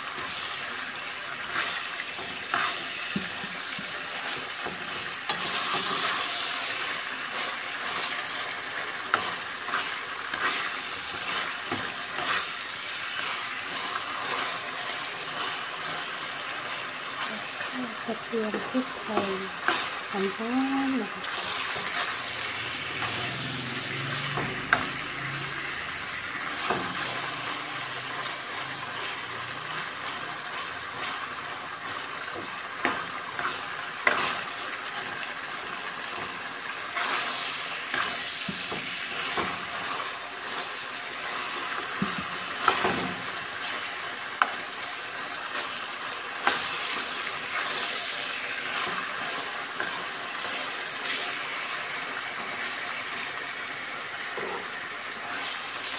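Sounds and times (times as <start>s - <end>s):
liver sizzling in oil: 0.0s - 55.9s
metal spatula scraping a pan: 1.0s - 17.6s, 21.2s - 31.2s, 36.8s - 44.6s.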